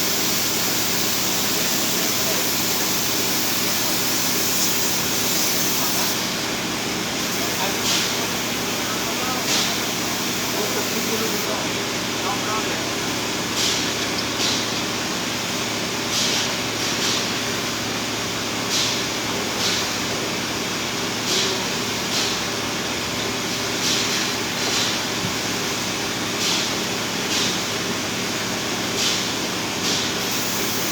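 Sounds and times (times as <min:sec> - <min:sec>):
short hissing bursts: 0:00.0 - 0:06.4, 0:07.2 - 0:11.6, 0:29.0 - 0:30.9
industrial machinery hum: 0:00.0 - 0:30.9.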